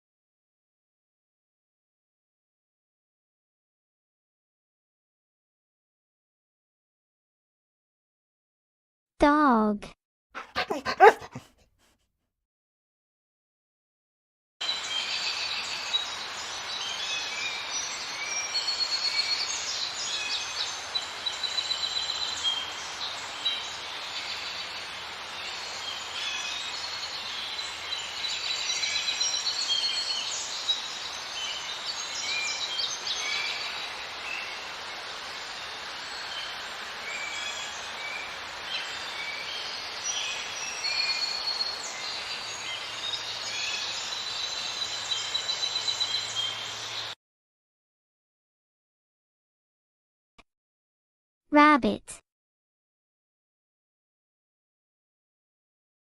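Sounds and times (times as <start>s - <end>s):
small birds chirping and trilling: 14.6s - 47.1s
steady hiss: 30.9s - 42.6s.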